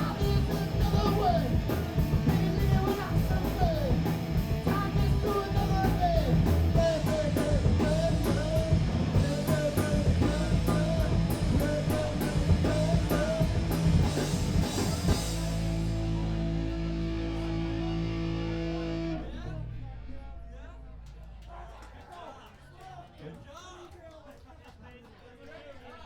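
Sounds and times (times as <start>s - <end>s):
drum kit: 0.0s - 19.2s
distorted electric guitar: 0.0s - 21.1s
bass guitar: 0.0s - 21.8s.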